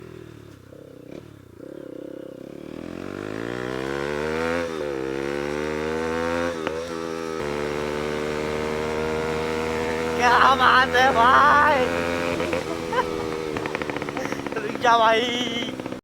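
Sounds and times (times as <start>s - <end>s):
motorcycle engine revving: 0.0s - 16.0s
exhaust pop: 12.0s - 14.7s.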